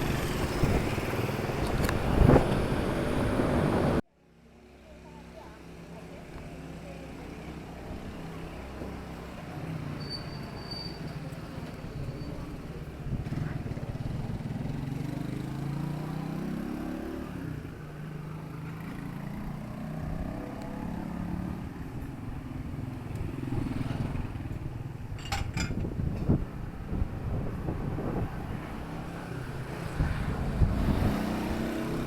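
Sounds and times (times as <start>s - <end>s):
vehicle engine passing: 27.3s - 32.0s.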